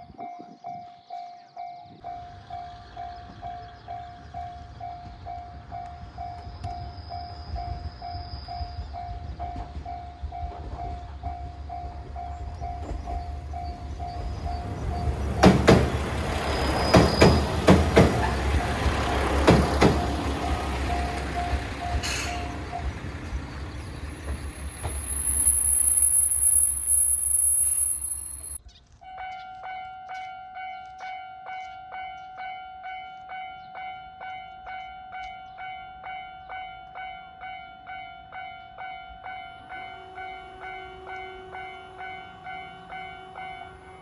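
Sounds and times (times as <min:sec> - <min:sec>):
railway crossing bell clanging: 0:00.1 - 0:44.0
train wheels knocking on rail joints: 0:01.9 - 0:25.3.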